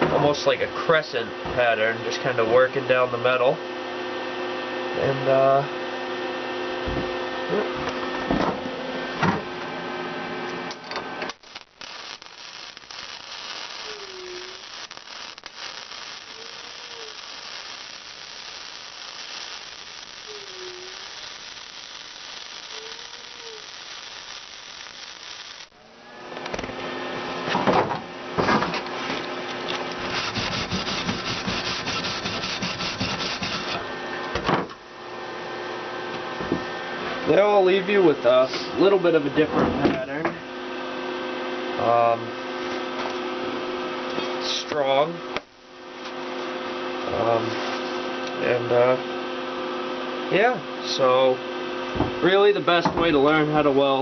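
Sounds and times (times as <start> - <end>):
welder arc crackling: 11.2 - 25.8, 29.6 - 33.9, 44.4 - 46.2
faint hiss: 11.5 - 25.7.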